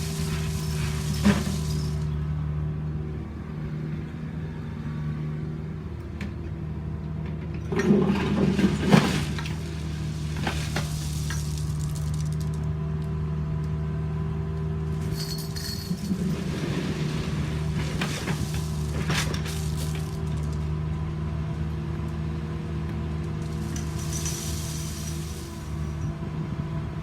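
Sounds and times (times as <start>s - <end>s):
scraping clattering noise: 15.3s - 20.6s.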